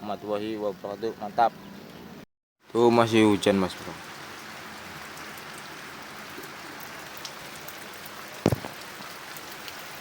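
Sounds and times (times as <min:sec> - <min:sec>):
steady rain hiss: 0:02.7 - 0:10.0
thump: 0:08.4 - 0:08.8.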